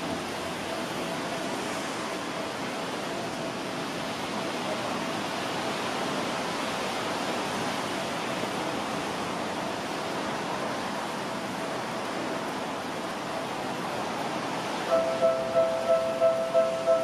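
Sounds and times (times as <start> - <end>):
heavy rain falling: 0.0 - 17.0
faint steady tone: 14.8 - 17.0.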